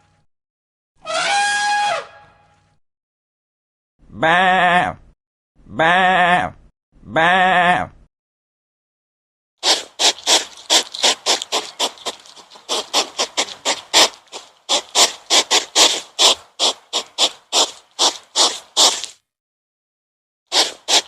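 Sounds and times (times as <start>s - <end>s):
animal breathy puffs: 9.6s - 19.2s, 20.5s - 21.0s.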